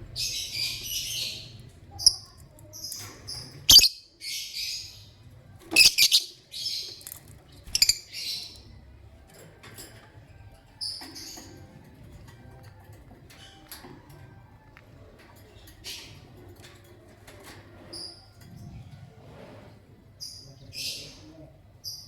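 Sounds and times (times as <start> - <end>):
lovebirds chirping: 0.0 - 8.8.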